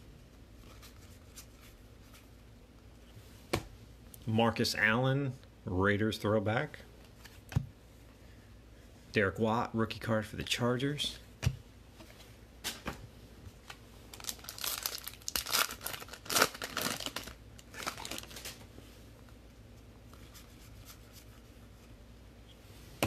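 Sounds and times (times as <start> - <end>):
card pack wrapper crinkling and tearing: 14.1 - 18.6.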